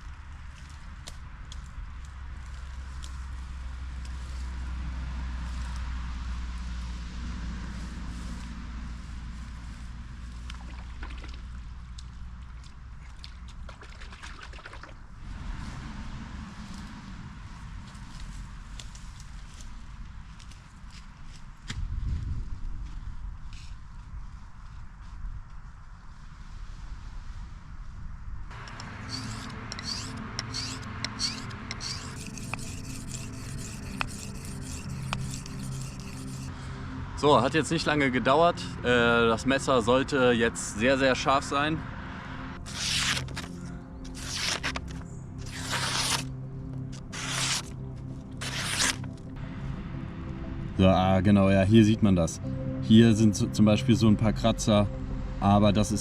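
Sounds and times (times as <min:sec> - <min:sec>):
steady low hum: 0:15.0 - 0:26.4, 0:27.0 - 0:56.0
low rumble: 0:15.0 - 0:56.0
knife scraping on oilstone: 0:29.1 - 0:36.5, 0:45.5 - 0:46.2, 0:47.2 - 0:47.7, 0:48.4 - 0:49.0.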